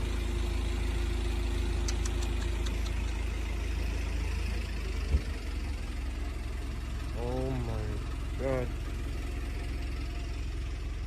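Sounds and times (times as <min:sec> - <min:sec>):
vehicle engine idling: 0:00.0 - 0:11.0
light ticks: 0:01.8 - 0:03.2.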